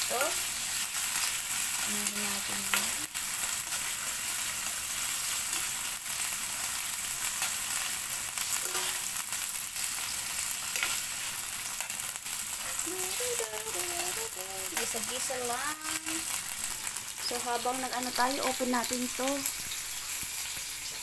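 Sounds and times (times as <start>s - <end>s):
food sizzling in hot oil: 0.0s - 21.0s
spatula scraping pan: 7.3s - 9.2s, 9.8s - 12.0s.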